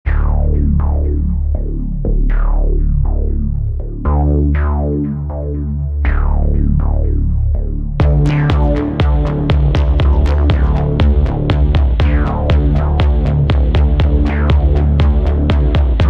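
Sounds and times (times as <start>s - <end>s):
synthesizer plucks with filter sweep: 0.1s - 16.0s
heavy sustained bass: 5.0s - 16.0s
drum machine beat with hi-hats: 8.0s - 16.0s.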